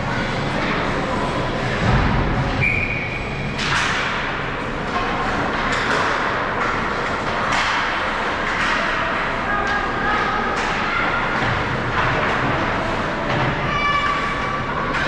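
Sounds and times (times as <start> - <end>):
skating and play din: 0.0 - 15.0
hockey sticks and puck clacks: 3.4 - 15.0.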